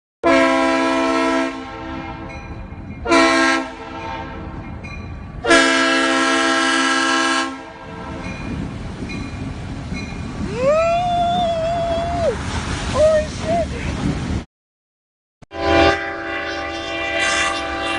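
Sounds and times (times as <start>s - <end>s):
train air horn blasts: 0.2s - 2.3s, 3.0s - 4.6s, 5.4s - 8.3s, 15.5s - 17.9s.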